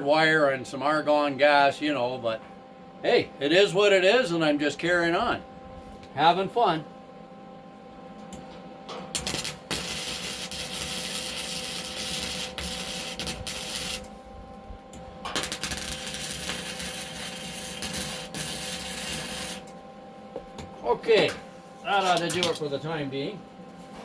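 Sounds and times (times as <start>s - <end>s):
electrical hum: 0.0s - 24.0s
welder crackling hiss: 9.2s - 14.2s, 15.3s - 19.7s, 21.9s - 22.7s.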